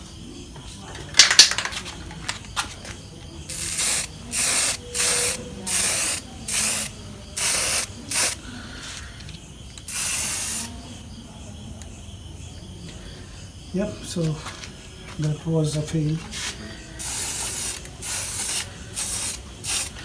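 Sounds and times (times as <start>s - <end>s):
spray can hissing: 3.5s - 8.4s, 9.8s - 10.7s, 16.4s - 20.0s.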